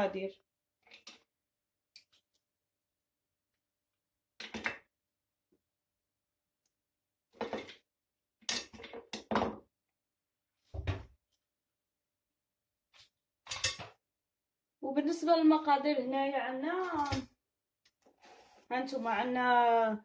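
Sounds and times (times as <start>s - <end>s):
kitchen things knocking and clattering: 7.4s - 7.8s, 8.5s - 9.7s, 13.5s - 14.0s, 16.8s - 17.3s.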